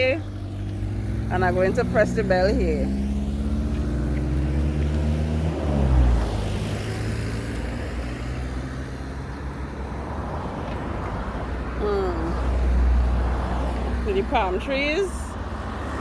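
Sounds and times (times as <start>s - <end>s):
vehicle passing by: 0.0s - 9.5s
road and tyre noise: 0.0s - 16.0s.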